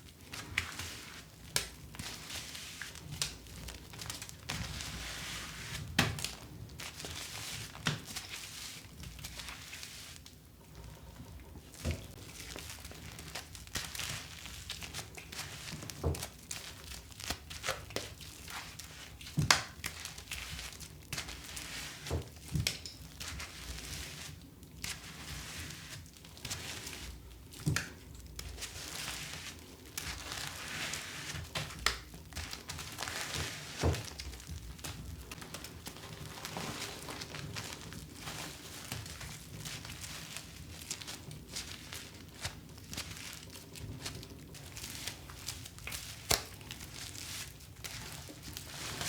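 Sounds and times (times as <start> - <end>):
packaging crinkling and tearing: 31.4 - 49.0.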